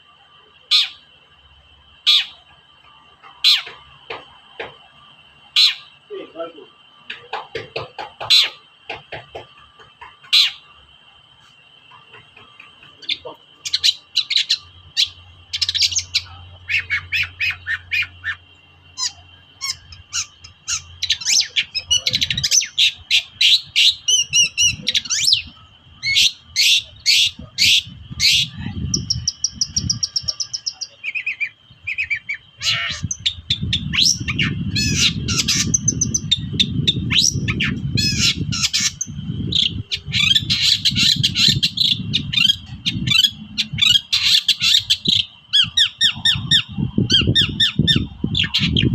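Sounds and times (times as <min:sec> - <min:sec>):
shrike singing chirps and squawks: 0:00.0 - 0:48.9.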